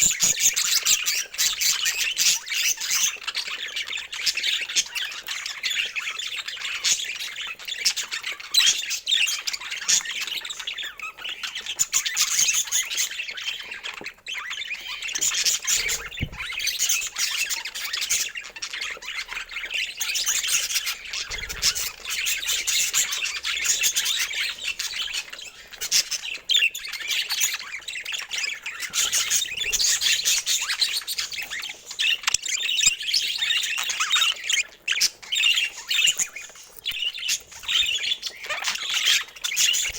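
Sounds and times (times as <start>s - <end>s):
budgerigars chattering: 0.0s - 39.9s
soft low thumps: 16.0s - 16.6s.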